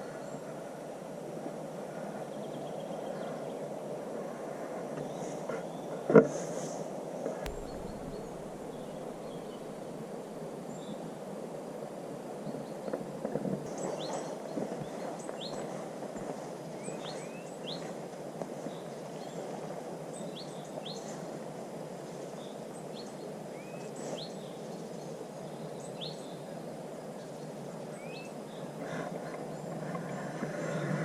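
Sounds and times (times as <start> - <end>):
low rushing background: 7.5 - 10.9.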